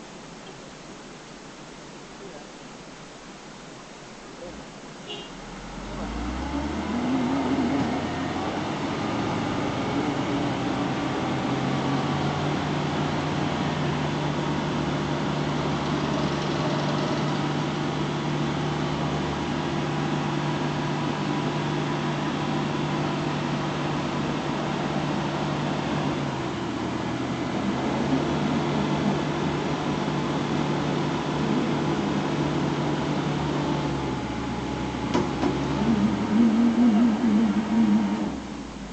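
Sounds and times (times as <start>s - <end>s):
vehicle engine drone: 4.4s - 38.9s
road and wind noise: 4.7s - 38.9s.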